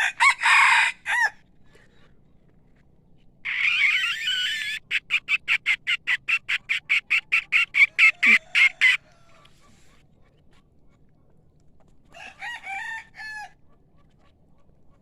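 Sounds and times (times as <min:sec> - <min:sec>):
bird calling: 0:03.4 - 0:09.9.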